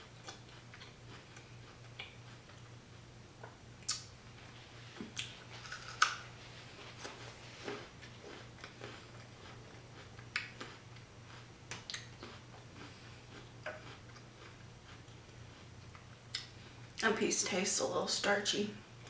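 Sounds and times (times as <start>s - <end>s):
crunchy chewing: 0.0s - 3.1s, 5.0s - 16.6s
faint low hum: 0.0s - 19.0s
wet mouth sounds: 3.8s - 4.1s, 11.7s - 14.5s.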